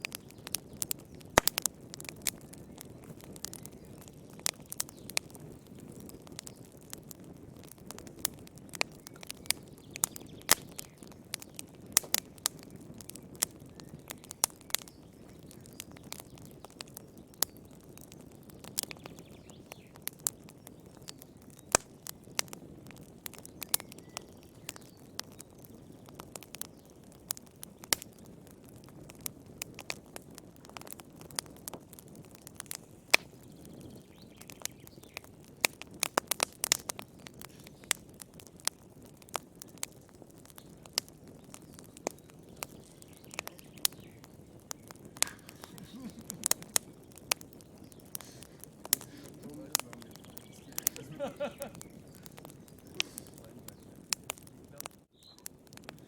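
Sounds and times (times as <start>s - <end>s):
firewood crackling and popping: 0.0s - 56.0s
low rush of flame: 24.2s - 56.0s.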